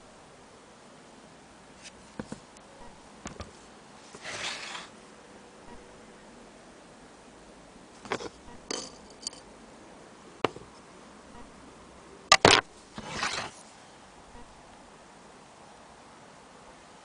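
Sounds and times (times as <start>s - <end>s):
brief scrape: 4.1s - 4.9s, 13.0s - 13.6s
hard objects clinking: 8.1s - 9.5s.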